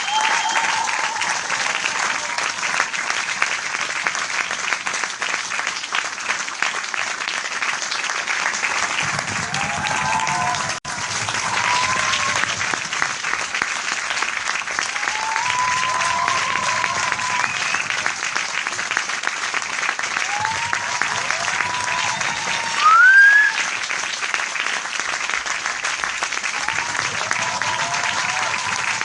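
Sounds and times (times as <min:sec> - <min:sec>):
crowd applauding: 0:00.0 - 0:29.0.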